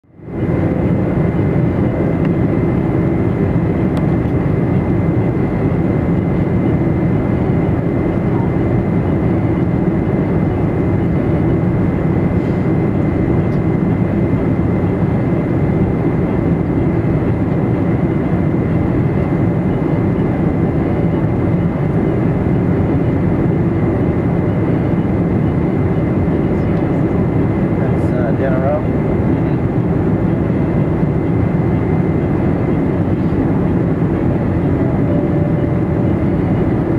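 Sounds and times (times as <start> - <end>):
airliner cabin engine rumble: 0.0 - 36.9.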